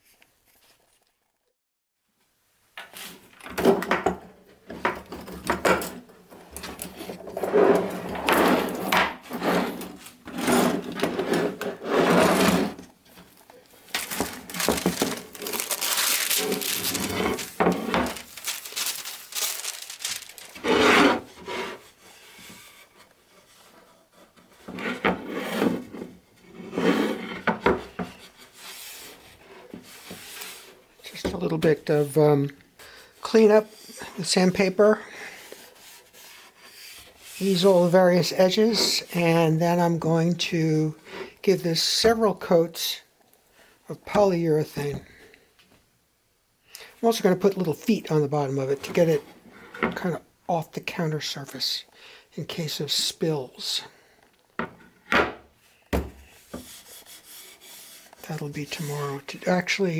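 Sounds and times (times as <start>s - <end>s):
sandpaper rubbing on wood: 56.6s - 58.1s.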